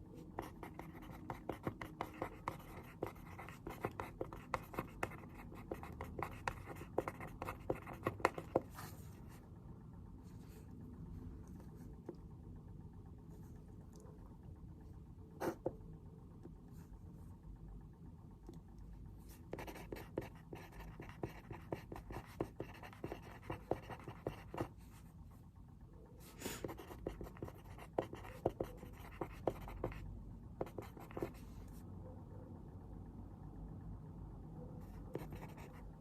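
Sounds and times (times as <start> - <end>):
low room hum: 0.0 - 36.0
pencil writing on paper: 0.4 - 9.0, 15.4 - 15.8, 19.5 - 24.7, 26.6 - 30.0, 30.6 - 31.4, 35.1 - 35.8.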